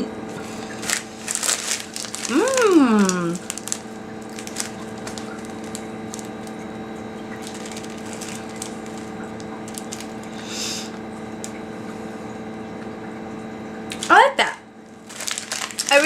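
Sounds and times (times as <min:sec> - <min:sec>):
steady electrical hum: 0:00.0 - 0:16.0
puffed rice crackers being chewed: 0:00.4 - 0:10.4, 0:15.0 - 0:16.0.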